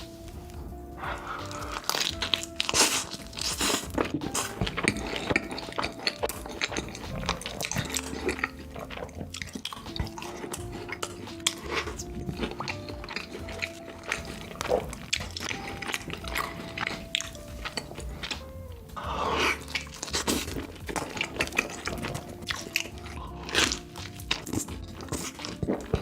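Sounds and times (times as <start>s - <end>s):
faint background music: 0.0s - 26.0s
wet chewing: 0.0s - 26.0s
crunchy bites: 1.4s - 18.5s.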